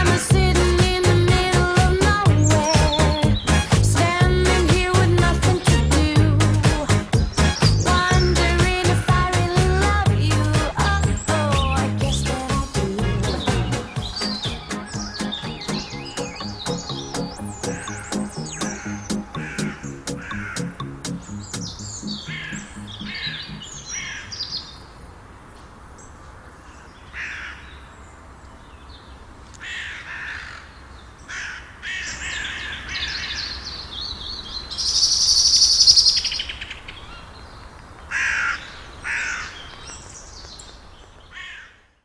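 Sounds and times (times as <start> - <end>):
faint music: 0.0 - 24.1
harsh cawing bird calls: 12.9 - 24.8, 26.6 - 28.0, 29.6 - 40.6, 41.2 - 42.0.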